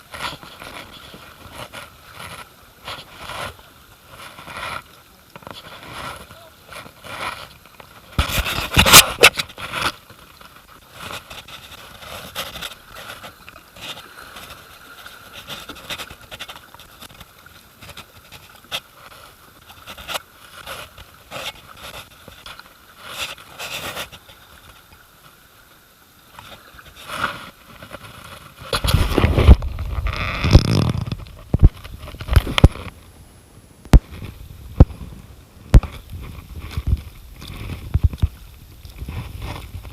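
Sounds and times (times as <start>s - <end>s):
paddle knocks and splashes: 28.7s - 33.0s.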